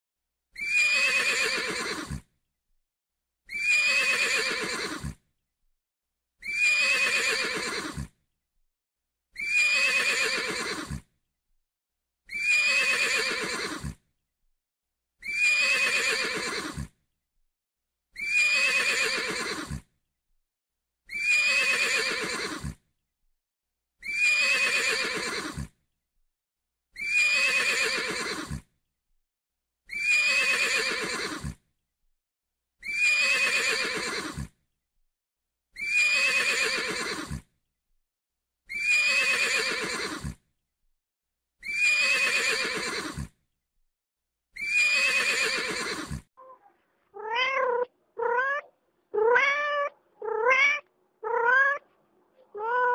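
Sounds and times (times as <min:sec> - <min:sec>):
horse whinnying: 0:00.6 - 0:02.2, 0:03.5 - 0:05.2, 0:06.4 - 0:08.1, 0:09.4 - 0:11.0, 0:12.3 - 0:14.0, 0:15.2 - 0:16.9, 0:18.2 - 0:19.8, 0:21.1 - 0:22.8, 0:24.0 - 0:25.7, 0:27.0 - 0:28.6, 0:29.9 - 0:31.6, 0:32.8 - 0:34.5, 0:35.8 - 0:37.4, 0:38.7 - 0:40.4, 0:41.6 - 0:43.3, 0:44.6 - 0:46.3, 0:47.2 - 0:51.8.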